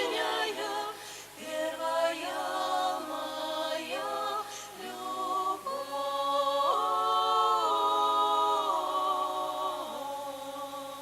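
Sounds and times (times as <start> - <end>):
women singing in harmony: 0.0 - 11.0.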